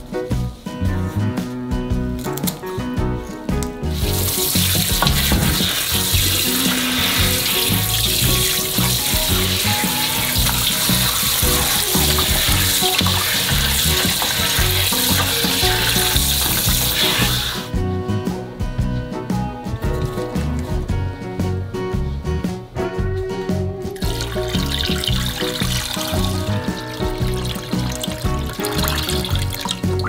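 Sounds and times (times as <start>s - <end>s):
tap water running into metal bowl: 4.0s - 17.7s, 24.0s - 30.0s.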